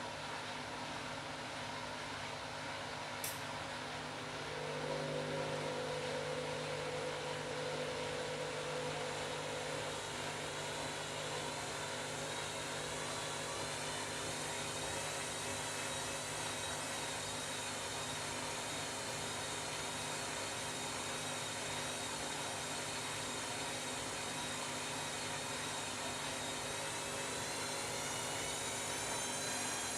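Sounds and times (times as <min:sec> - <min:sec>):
washing machine running: 0:02.1 - 0:29.9.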